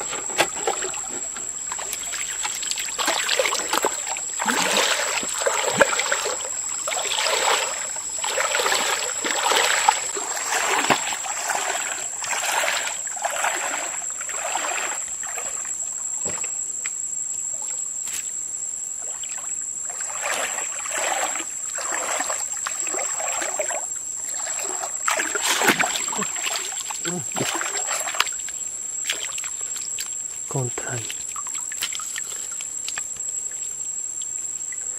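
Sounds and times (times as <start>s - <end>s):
water splashing and sloshing: 0.0s - 34.9s.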